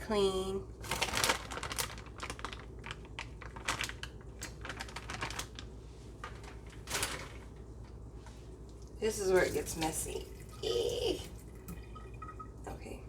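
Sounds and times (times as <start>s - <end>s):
packaging rustle: 0.8s - 7.6s
packaging clicks and crackles: 0.9s - 7.4s.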